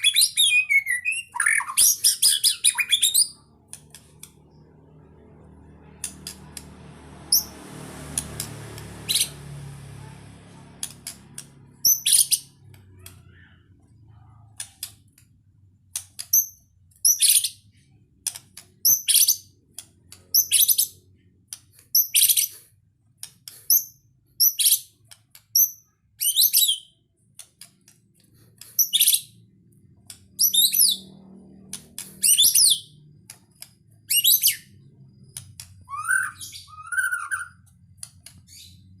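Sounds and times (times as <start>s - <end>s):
bird singing whistled phrases: 35.9s - 37.6s.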